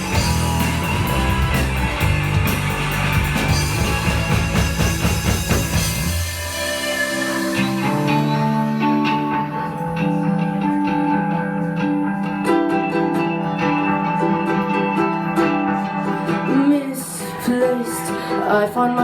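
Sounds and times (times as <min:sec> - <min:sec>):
guitar ringing sustained notes: 0:00.0 - 0:19.0.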